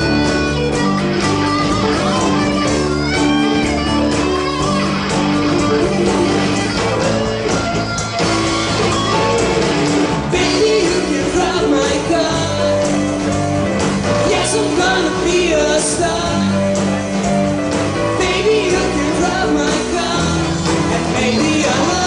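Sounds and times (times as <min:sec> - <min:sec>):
electric guitar solo: 0:00.0 - 0:10.3
rock band playing: 0:00.0 - 0:22.0.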